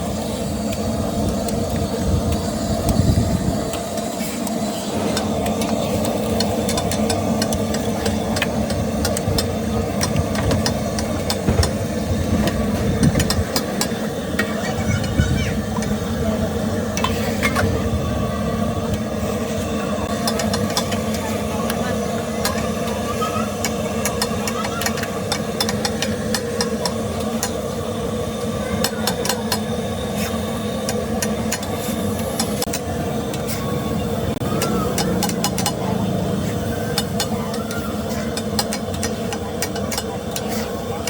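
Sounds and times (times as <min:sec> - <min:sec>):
constant low hum: 0:00.0 - 0:41.0
metal utensil clicking and scraping: 0:03.7 - 0:11.5, 0:34.6 - 0:35.9, 0:36.5 - 0:40.8.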